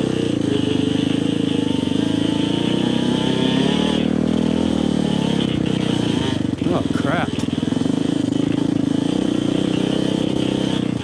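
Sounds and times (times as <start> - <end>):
dirt bike engine under load: 3.9 - 11.0.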